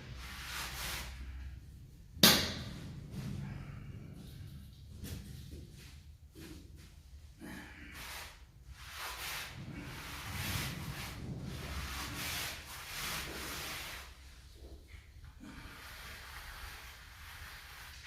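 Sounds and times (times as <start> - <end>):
mortar scraping strokes: 7.8 - 14.3, 15.5 - 18.0.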